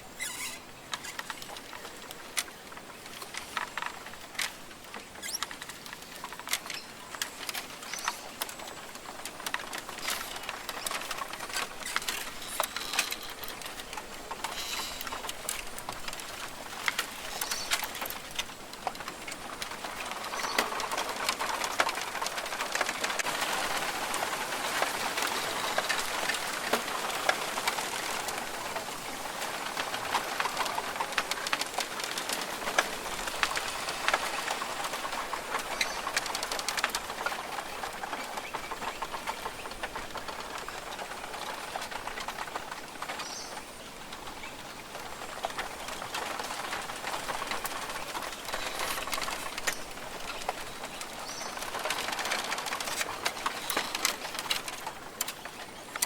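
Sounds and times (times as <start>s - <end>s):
birds calling: 0.0s - 18.4s, 32.0s - 56.0s
insect clicks and ticks: 0.2s - 28.5s.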